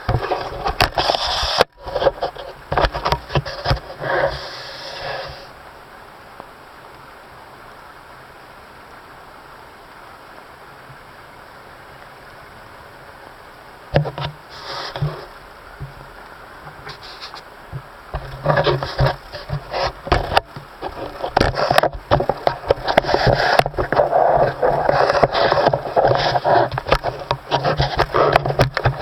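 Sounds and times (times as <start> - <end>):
rubbing and scraping: 0.0 - 5.5, 14.0 - 16.0, 16.6 - 29.0
steady hiss: 0.0 - 29.0.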